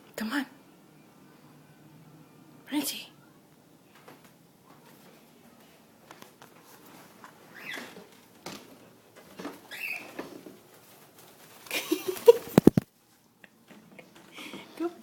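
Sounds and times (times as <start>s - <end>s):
bird rustling: 6.0s - 13.3s.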